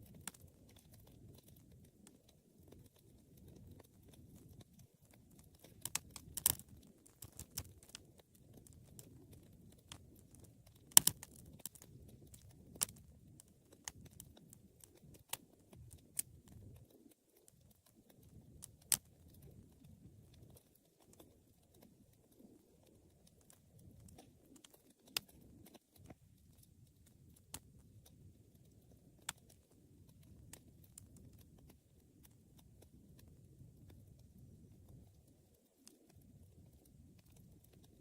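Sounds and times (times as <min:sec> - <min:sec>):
low rumble of flames: 0:00.0 - 0:38.0
wood fire crackling: 0:00.0 - 0:38.0
sharp pops of fire: 0:10.7 - 0:13.0.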